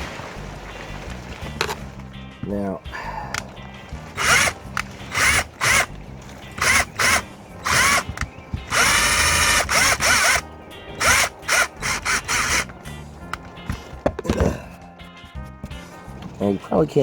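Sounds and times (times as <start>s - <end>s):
power drill whining: 4.2s - 5.9s, 6.5s - 10.4s, 11.0s - 12.7s.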